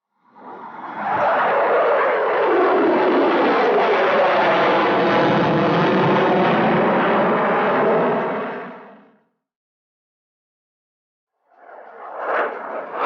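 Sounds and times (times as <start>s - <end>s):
jet aircraft rush: 0.2s - 9.2s, 11.6s - 13.0s.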